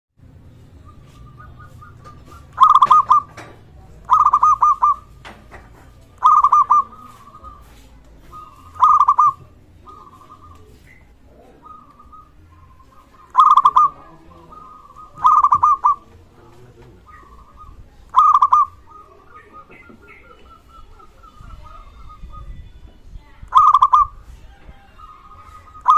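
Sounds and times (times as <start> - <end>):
dove cooing: 0.4 - 22.6, 23.5 - 25.9.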